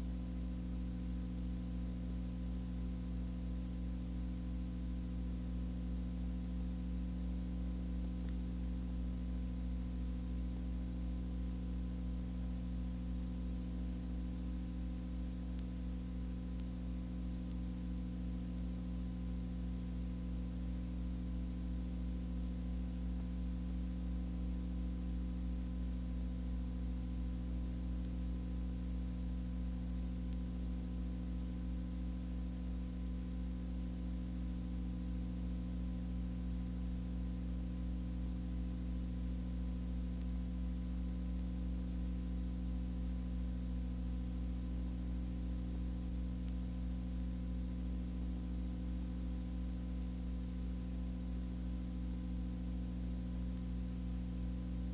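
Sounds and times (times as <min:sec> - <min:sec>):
constant hiss: 0:00.0 - 0:54.9.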